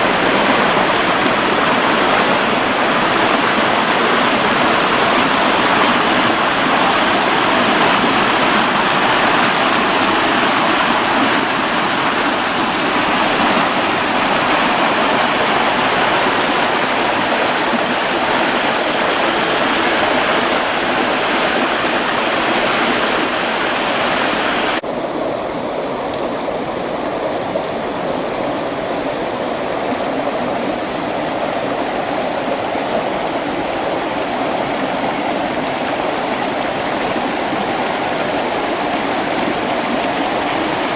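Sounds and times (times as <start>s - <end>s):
creek water rushing: 0.0s - 40.9s.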